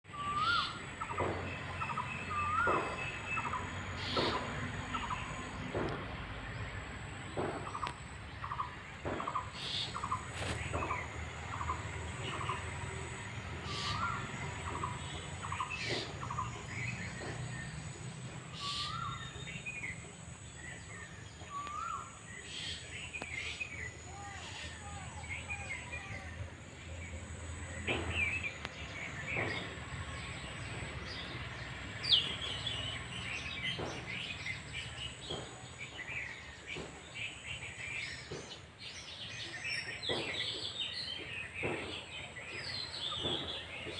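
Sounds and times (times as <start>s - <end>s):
bird calls: 0.1s - 6.7s, 7.4s - 43.9s.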